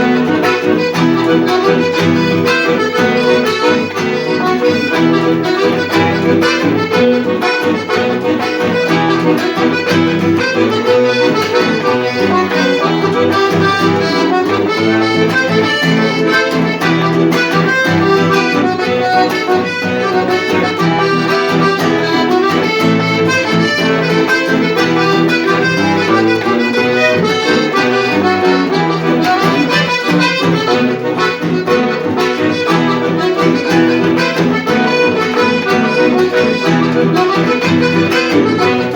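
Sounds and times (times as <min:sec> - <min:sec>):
accordion music: 0:00.0 - 0:38.9.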